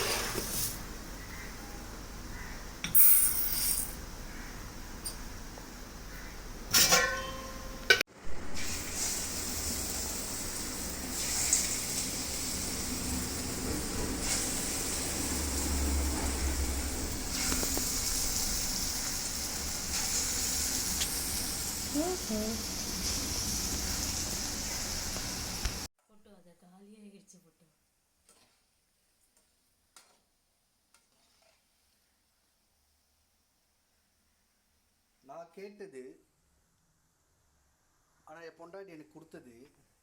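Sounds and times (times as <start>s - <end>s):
metal utensils clanking: 6.7s - 8.0s
food deep-frying in oil: 8.3s - 25.9s.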